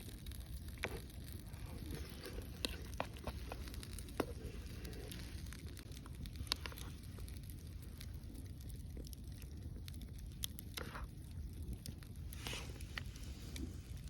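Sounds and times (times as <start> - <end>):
campfire crackling and popping: 0.0 - 14.0
low fire rumble: 0.0 - 14.0.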